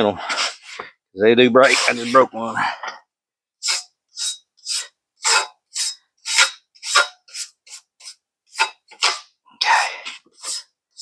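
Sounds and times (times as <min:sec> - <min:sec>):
wire brush scraping metal: 0:01.6 - 0:02.3, 0:03.6 - 0:09.3, 0:10.3 - 0:11.0.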